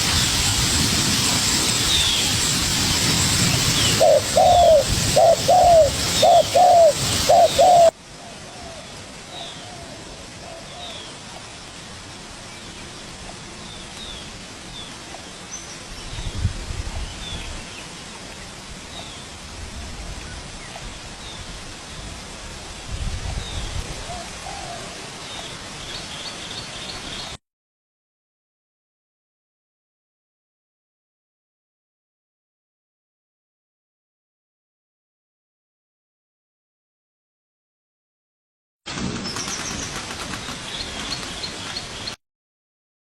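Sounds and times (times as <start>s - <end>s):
small birds chirping: 1.7s - 7.9s
dove cooing: 3.4s - 8.8s.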